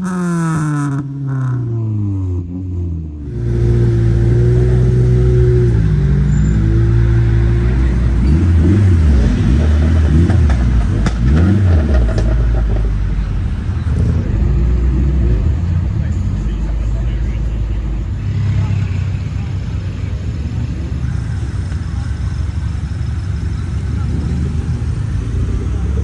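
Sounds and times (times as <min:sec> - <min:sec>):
car engine revving: 0:00.0 - 0:26.0
exhaust pops: 0:03.3 - 0:08.2, 0:09.2 - 0:13.1.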